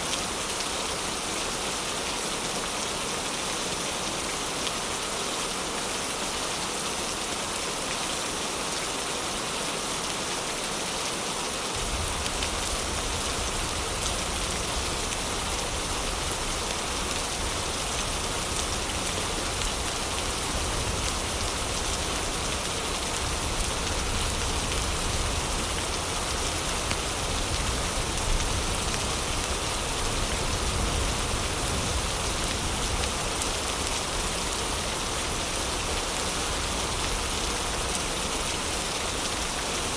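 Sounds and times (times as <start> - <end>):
heavy rain hissing: 11.4 - 39.9.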